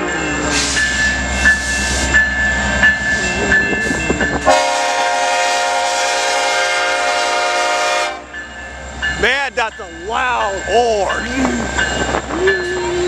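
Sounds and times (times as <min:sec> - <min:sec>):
train bell ringing: 0:00.0 - 0:05.9, 0:06.7 - 0:13.0
locomotive rumbling past: 0:00.0 - 0:13.0
locomotive air horn: 0:04.4 - 0:08.3.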